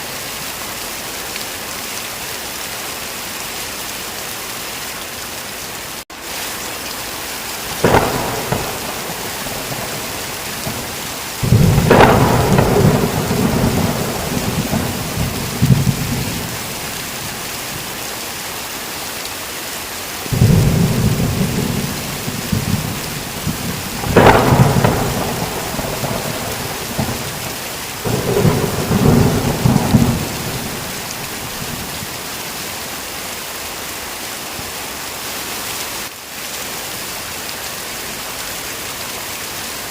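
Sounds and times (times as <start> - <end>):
heavy rain: 0.0 - 39.9
thunder cracks and rumbles: 7.8 - 17.4, 20.3 - 32.2.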